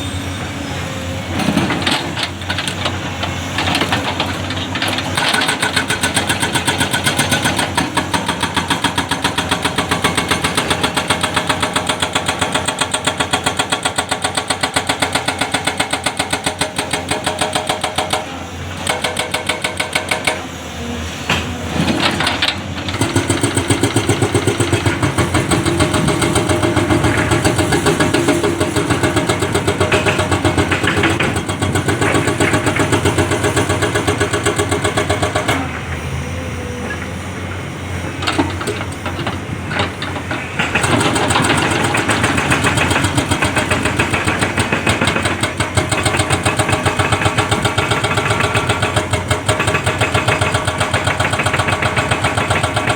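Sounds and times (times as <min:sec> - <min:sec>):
heavy diesel engine pulsing: 0:15.3 - 0:52.9.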